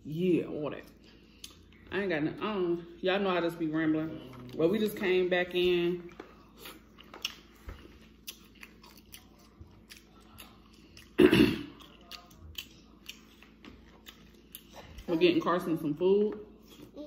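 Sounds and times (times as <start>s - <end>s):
chewing and mouth sounds: 0.8s - 1.9s, 5.6s - 15.2s.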